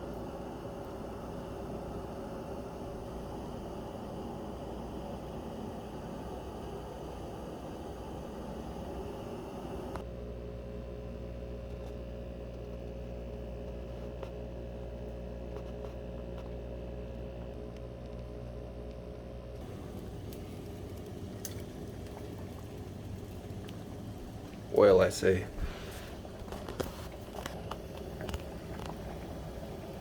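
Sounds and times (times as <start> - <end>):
water boiling in a pot: 0.0 - 10.1, 19.6 - 30.0
steady hum: 0.0 - 30.0.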